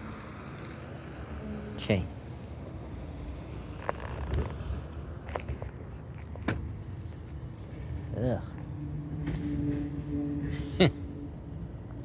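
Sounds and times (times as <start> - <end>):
sharp clicks or knocks: 6.4 - 6.7.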